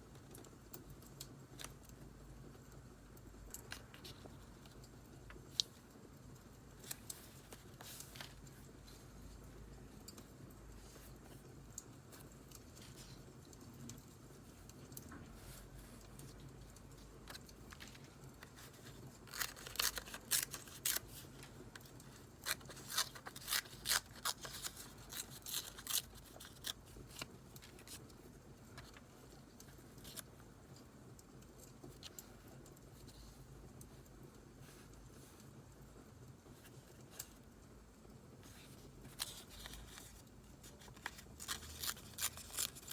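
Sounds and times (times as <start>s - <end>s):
scissors snipping paper: 17.3s - 21.3s, 22.3s - 28.0s, 39.2s - 42.9s.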